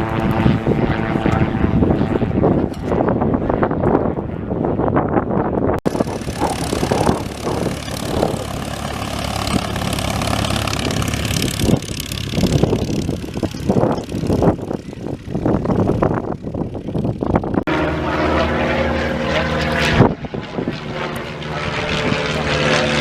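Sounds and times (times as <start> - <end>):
light aircraft engine droning: 0.0 - 23.0
broad rushing noise: 5.8 - 20.4.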